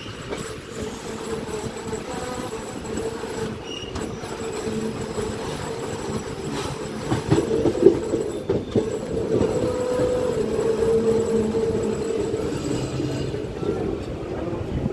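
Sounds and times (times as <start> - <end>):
train humming on rails: 0.0 - 14.9
wheels knocking over rail joints: 3.0 - 13.4.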